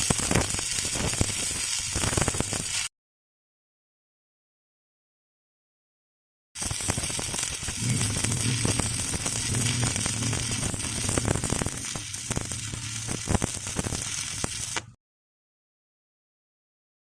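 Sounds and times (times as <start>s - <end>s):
welding arc crackling: 0.0s - 2.9s, 6.6s - 15.0s
sharp cracks: 6.6s - 15.0s
low hum: 7.8s - 14.8s.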